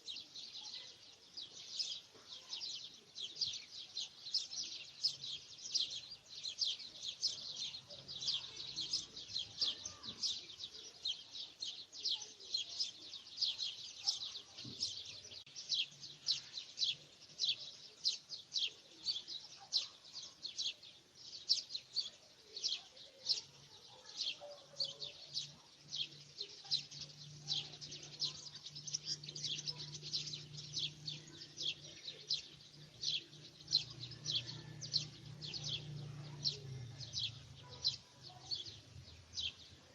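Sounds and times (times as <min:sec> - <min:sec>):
small bird chirping: 0:00.0 - 0:39.9.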